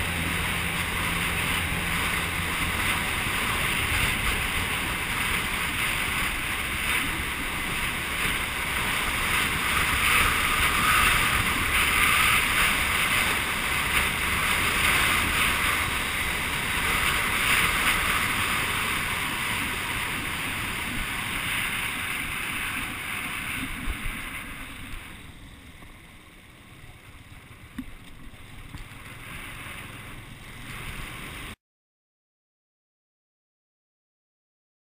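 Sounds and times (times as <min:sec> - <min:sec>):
wind rushing over microphone: 0:00.0 - 0:25.9
motorcycle engine: 0:00.0 - 0:31.6.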